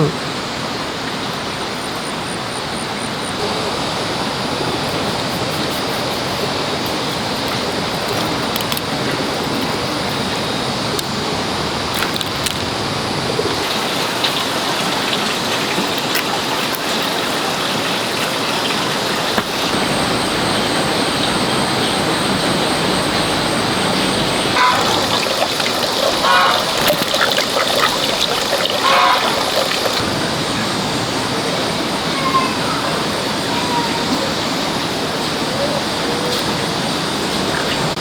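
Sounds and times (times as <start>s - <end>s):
steady rushing noise: 19.4s - 25.2s.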